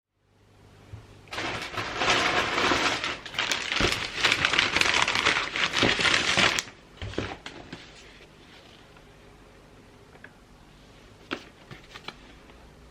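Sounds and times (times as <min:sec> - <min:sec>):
wrapping paper crinkling: 0:01.3 - 0:08.1.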